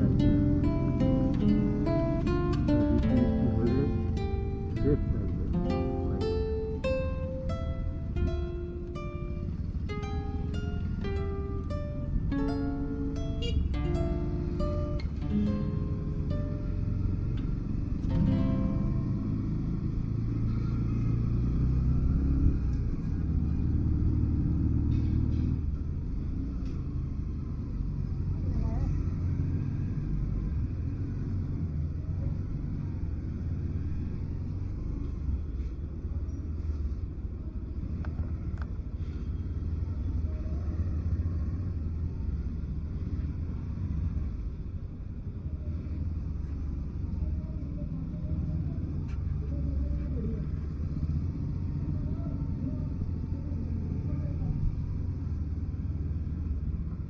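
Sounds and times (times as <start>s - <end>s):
motorcycle engine rumbling: 0.0s - 26.3s
motorcycle engine rumble: 0.0s - 57.0s
road noise: 0.0s - 57.0s.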